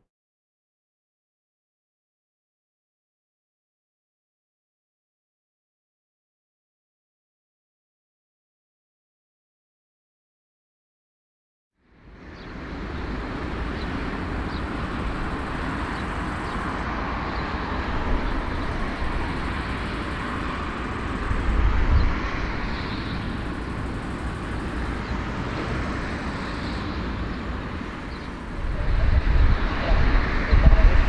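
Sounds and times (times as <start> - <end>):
engine rumbling: 12.1 - 31.0.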